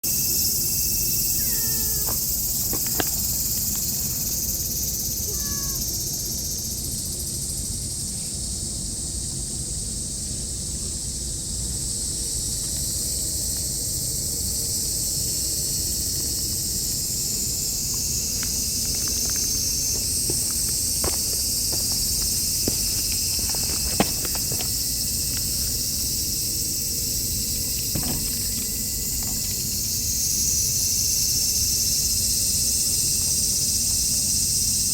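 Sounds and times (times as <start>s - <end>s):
high-pitched insect chorus: 0.0s - 34.9s.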